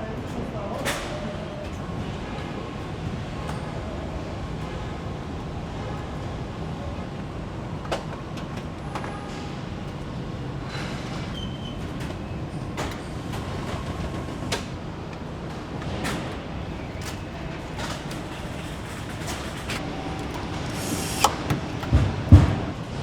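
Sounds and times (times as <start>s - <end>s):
low machinery hum: 16.4s - 23.0s.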